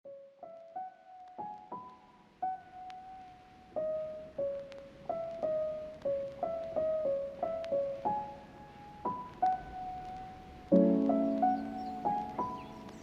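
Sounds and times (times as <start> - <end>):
electric piano slow melody: 0.1 - 13.0.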